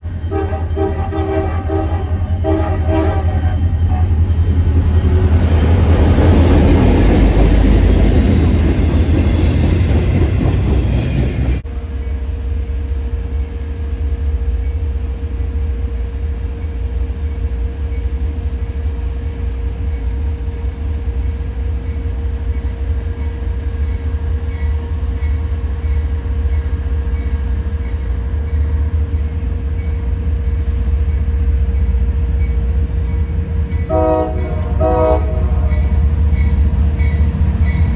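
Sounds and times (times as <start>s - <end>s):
diesel locomotives rumbling: 0.0s - 37.9s
train horn chord: 0.2s - 4.2s, 33.8s - 37.1s.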